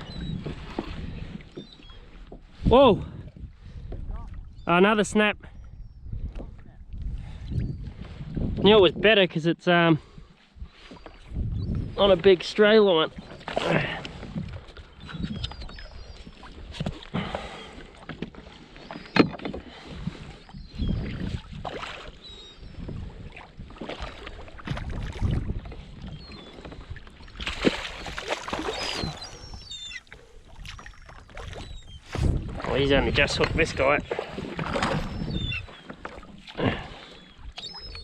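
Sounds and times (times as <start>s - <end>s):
water slapping against kayak hull: 0.0s - 2.4s, 12.1s - 38.0s
knocks and bumps on hull: 18.1s - 20.1s, 31.4s - 36.9s.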